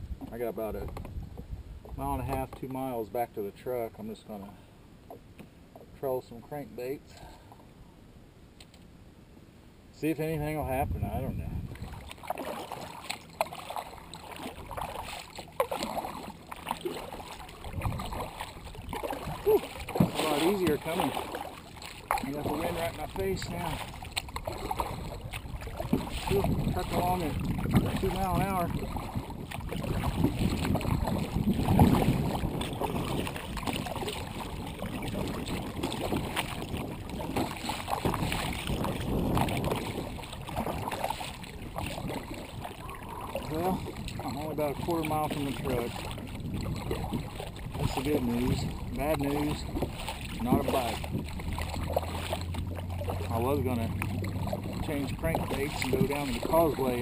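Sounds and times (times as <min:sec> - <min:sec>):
wind rumble: 0:10.4 - 0:12.3, 0:16.1 - 0:56.7
paddle splashing in water: 0:10.8 - 0:57.0.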